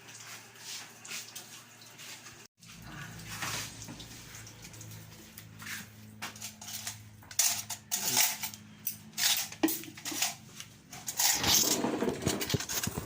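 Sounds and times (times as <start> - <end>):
spoons and plates clinking: 6.3 - 13.0.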